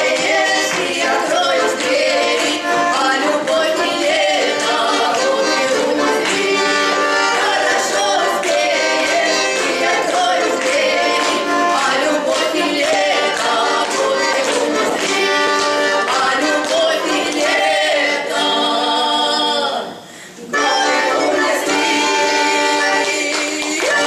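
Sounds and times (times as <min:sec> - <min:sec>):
button accordion: 0:00.0 - 0:24.0
women singing in duet: 0:00.0 - 0:24.0.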